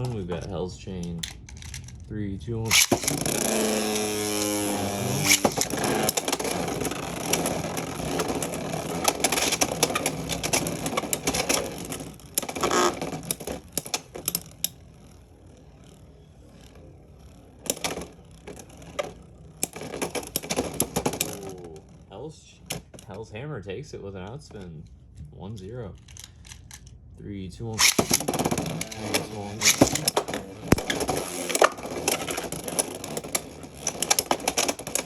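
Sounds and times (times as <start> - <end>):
tops spinning: 0.0 - 23.2, 27.7 - 35.0
spinning tops clashing and rattling: 2.7 - 15.0, 27.8 - 35.0
launcher whir: 2.7 - 21.3, 27.8 - 35.0.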